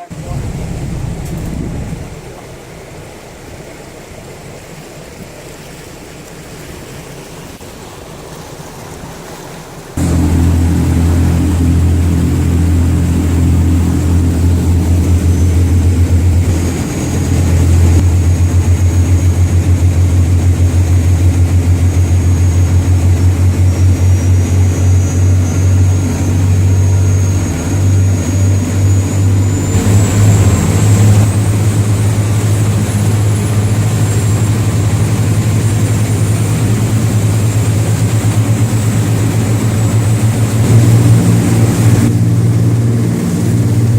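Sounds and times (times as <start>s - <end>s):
boat engines droning: 0.0s - 43.9s
faint high whine: 10.0s - 43.9s.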